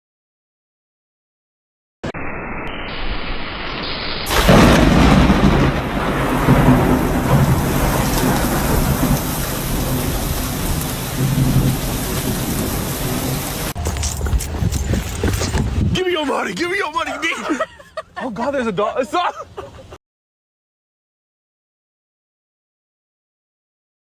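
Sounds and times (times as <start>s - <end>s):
dense rushing noise: 2.1s - 16.5s
low rumbling: 2.3s - 16.0s.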